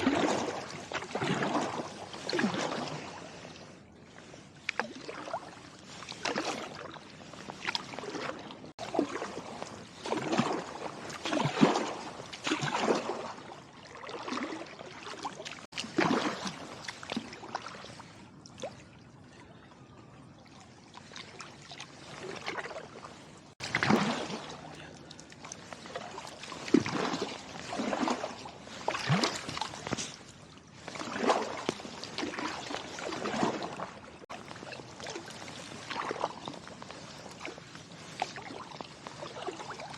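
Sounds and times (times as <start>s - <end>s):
kayak paddle splashing in water: 0.0s - 19.1s, 20.4s - 39.9s.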